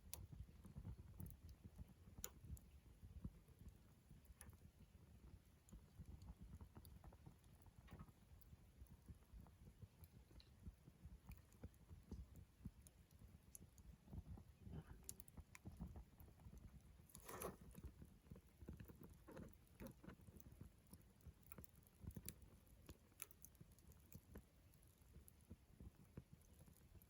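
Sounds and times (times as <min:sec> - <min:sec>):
campfire crackling: 0:00.0 - 0:27.0.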